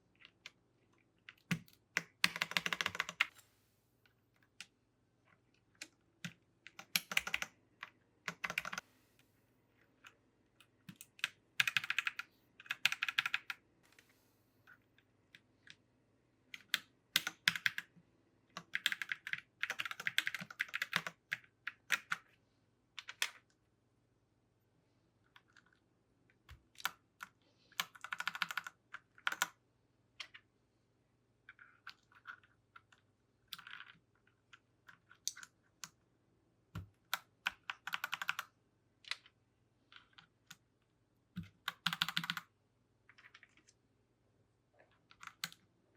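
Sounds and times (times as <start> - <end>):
mechanical keyboard keys clacking: 1.3 - 3.3, 6.7 - 7.5.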